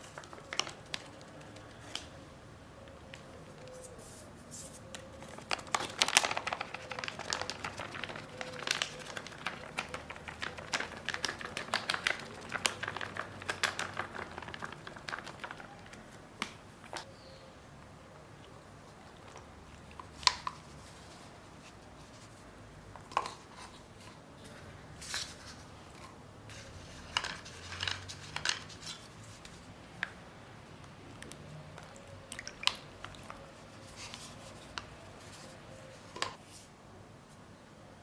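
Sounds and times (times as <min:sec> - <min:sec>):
chalk crumbling: 0:03.2 - 0:16.2.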